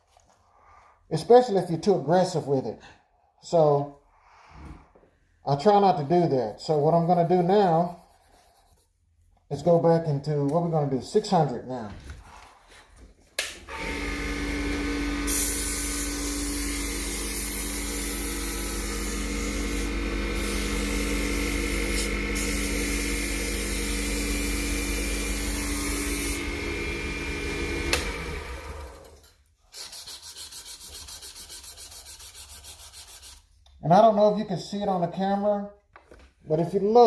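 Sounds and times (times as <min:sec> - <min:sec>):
sandpaper rubbing wood: 0:06.2 - 0:09.0, 0:29.6 - 0:33.5
back-and-forth sanding strokes: 0:06.4 - 0:09.0, 0:29.7 - 0:33.5.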